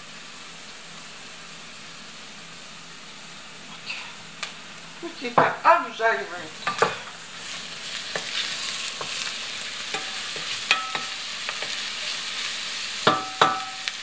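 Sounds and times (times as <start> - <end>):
vegetables and meat sizzling: 0.0 - 14.0
enamel pot ringing: 10.0 - 11.3, 13.1 - 14.0
wooden spatula knocking pot: 13.1 - 13.8.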